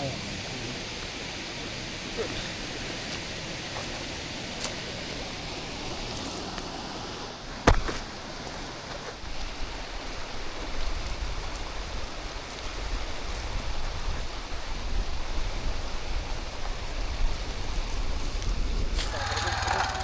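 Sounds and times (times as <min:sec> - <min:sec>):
waterfall rushing: 0:00.0 - 0:08.6
wind rumble on microphone: 0:00.0 - 0:20.0.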